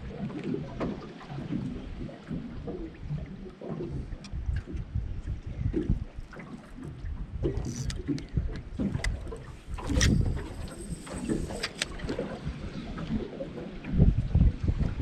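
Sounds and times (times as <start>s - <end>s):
water slapping boat hull: 0.0s - 15.0s
strong wind: 4.2s - 6.3s, 6.9s - 15.0s
small clicks: 7.6s - 8.3s, 9.8s - 12.0s.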